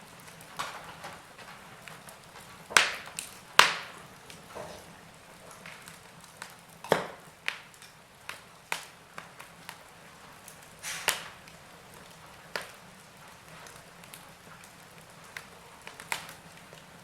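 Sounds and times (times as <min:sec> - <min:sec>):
wood fire crackling: 0:00.0 - 0:17.0
faint hiss: 0:10.7 - 0:11.7.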